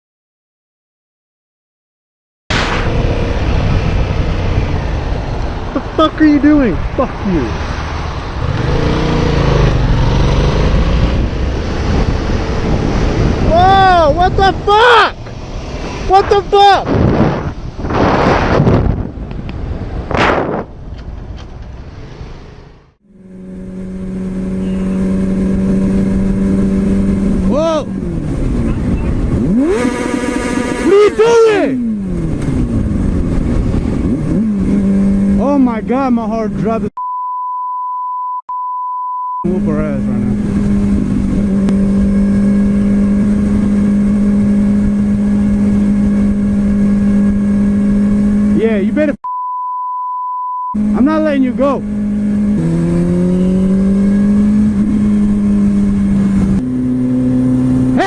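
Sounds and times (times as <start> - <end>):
wind rushing over microphone: 2.5 - 22.6, 23.5 - 30.8, 31.7 - 36.9, 39.5 - 49.2, 50.8 - 58.0
motorcycle engine running: 23.0 - 35.6, 39.5 - 48.8, 50.8 - 58.0.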